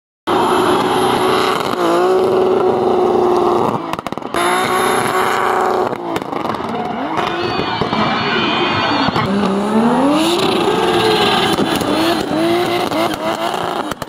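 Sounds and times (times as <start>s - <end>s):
car engine at high revs: 0.3s - 14.0s
tyres spinning in burnout: 0.3s - 14.0s
engine sharp pops: 3.9s - 4.4s, 11.5s - 14.0s.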